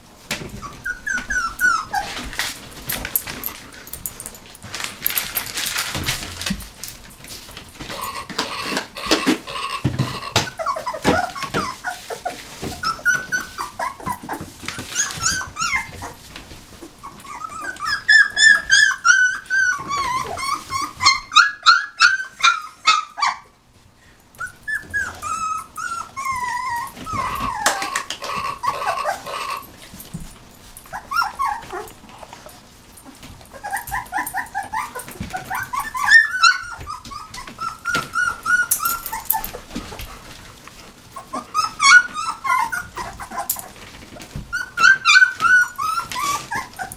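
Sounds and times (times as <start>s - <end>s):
puppies whimpering and squeaking: 0.3s - 46.9s.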